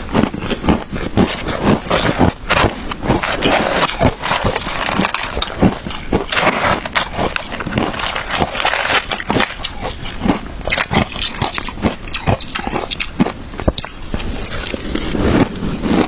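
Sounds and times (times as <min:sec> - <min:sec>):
chewing crunchy shaved ice: 0:00.0 - 0:16.0.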